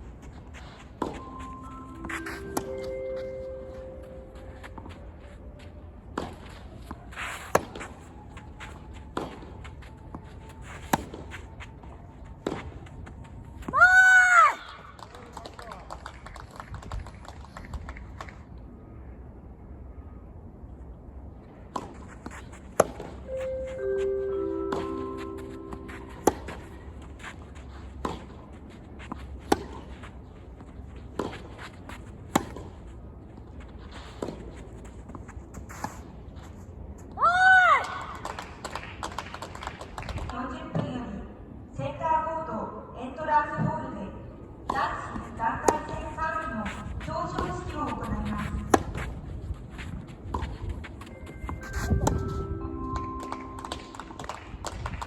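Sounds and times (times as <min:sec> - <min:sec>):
tennis rackets striking ball: 0:07.4 - 0:07.9, 0:24.7 - 0:26.8, 0:29.4 - 0:29.9, 0:32.3 - 0:32.8, 0:44.7 - 0:49.2
steady low hum: 0:18.4 - 0:37.2, 0:44.0 - 0:54.4.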